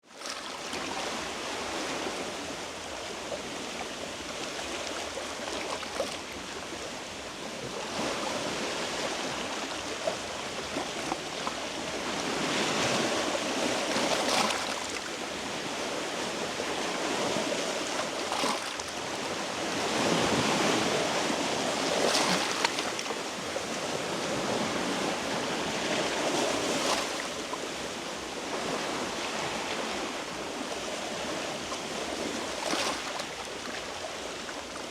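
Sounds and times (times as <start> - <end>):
sea waves washing against rocks: 7.3 - 34.9.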